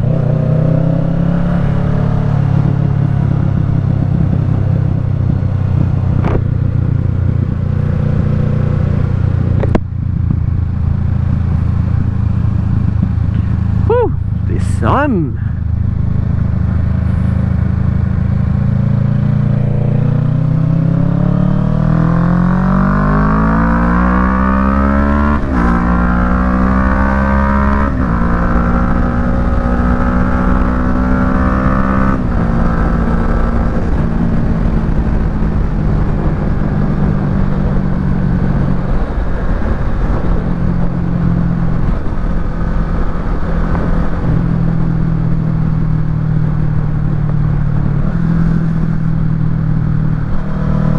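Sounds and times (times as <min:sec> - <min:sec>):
motorcycle engine revving and upshifting: 0:16.3 - 0:40.5.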